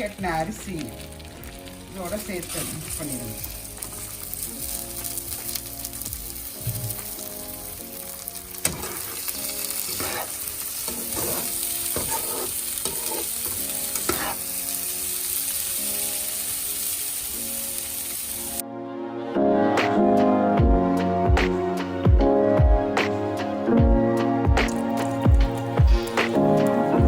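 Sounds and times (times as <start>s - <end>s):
rice sizzling in butter: 0.0s - 18.6s, 24.7s - 27.0s
spoon scraping a pot: 9.9s - 14.4s.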